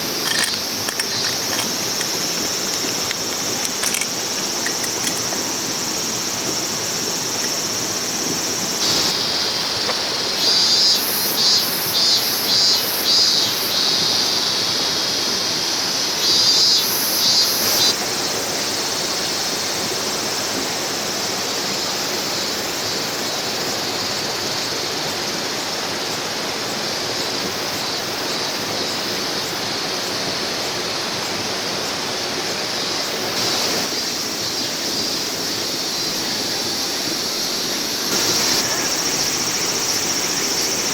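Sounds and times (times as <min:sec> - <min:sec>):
mountain stream running: 0:00.0 - 0:12.1, 0:17.7 - 0:40.9
high pulsing insect call: 0:00.0 - 0:40.9.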